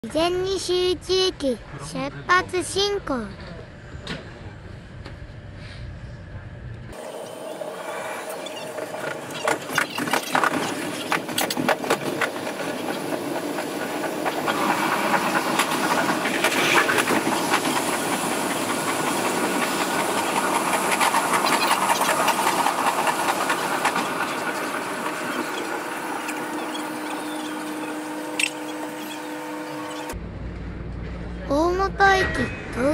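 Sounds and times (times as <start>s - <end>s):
train rolling noise: 2.4s - 31.8s
wheel clicks over rail joints: 8.6s - 29.3s.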